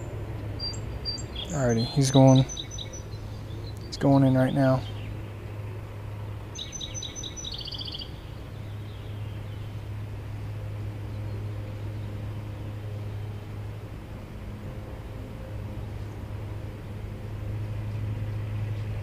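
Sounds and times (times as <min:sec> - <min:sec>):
songbird chirps and trill: 0:00.0 - 0:05.4, 0:06.5 - 0:09.9
steady low hum: 0:00.0 - 0:19.0.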